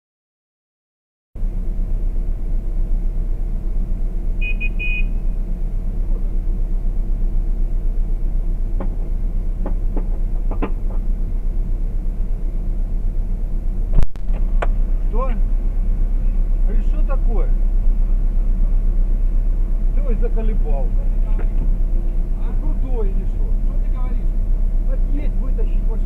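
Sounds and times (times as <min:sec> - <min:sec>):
car engine idling: 0:01.4 - 0:26.0
short beeping: 0:04.4 - 0:05.3.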